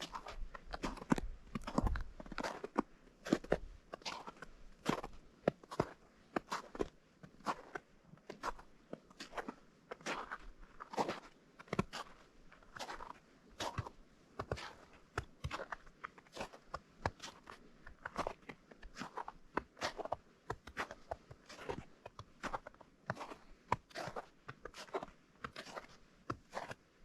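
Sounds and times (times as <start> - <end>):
footsteps crunching on snow: 0.0 - 6.8, 22.4 - 26.8.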